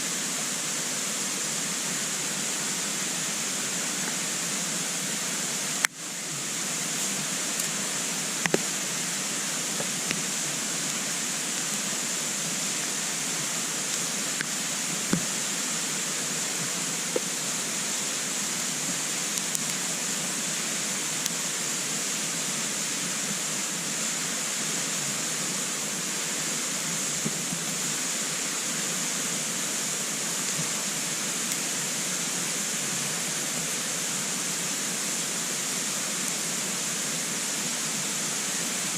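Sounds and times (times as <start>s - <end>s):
fire hissing: 0.0s - 38.9s
burning wood crackling: 6.5s - 21.5s, 30.2s - 32.2s.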